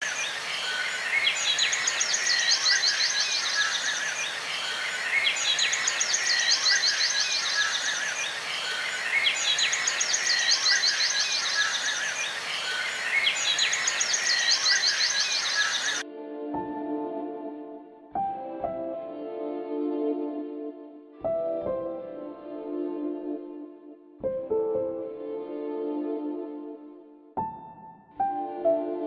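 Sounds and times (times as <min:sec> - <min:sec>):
birds chirping and trilling: 0:00.0 - 0:16.0
soft ambient music: 0:13.6 - 0:27.4, 0:28.2 - 0:29.0.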